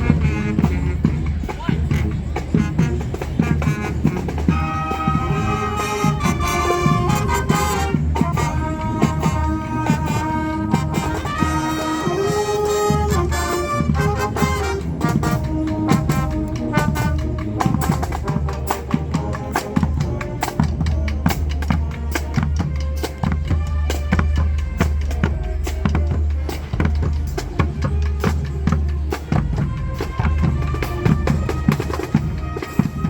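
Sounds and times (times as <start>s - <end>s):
brass sustained chords: 2.8s - 25.8s.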